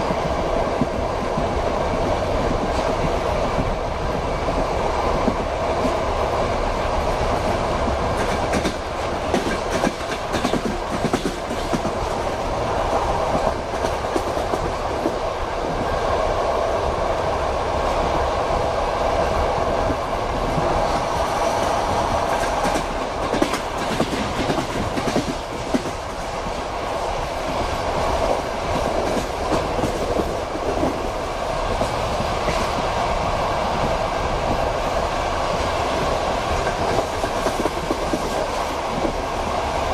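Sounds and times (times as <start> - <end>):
train wheels rumbling: 0.0 - 39.9
wheels clacking over rail joints: 7.3 - 12.4, 20.4 - 26.6.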